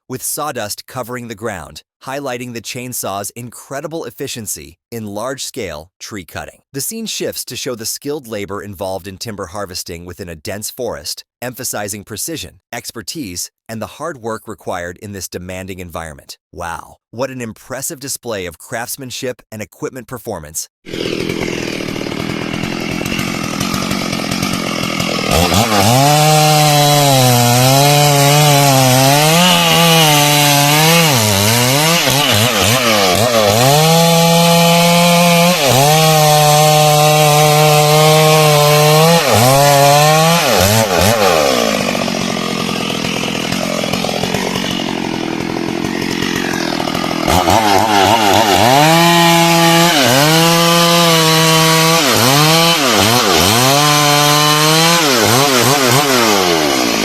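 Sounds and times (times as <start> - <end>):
chainsaw cutting wood: 20.9 - 57.0.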